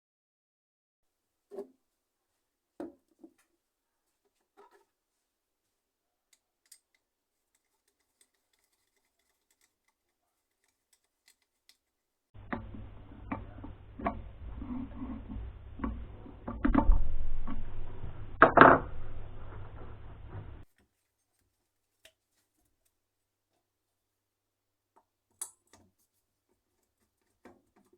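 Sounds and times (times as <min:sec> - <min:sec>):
low steady hum: 0:12.4 - 0:20.6.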